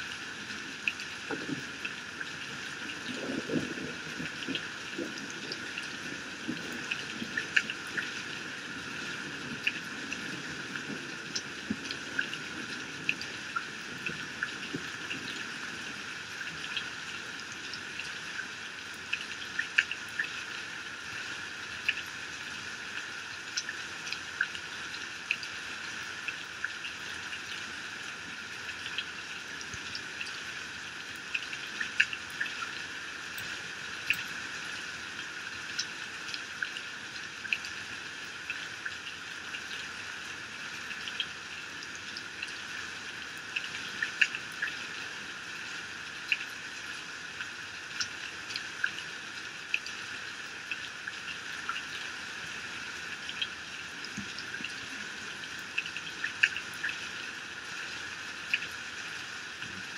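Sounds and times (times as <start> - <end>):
raindrops ticking close by: 0.0 - 59.9
heavy rain falling: 0.1 - 19.1.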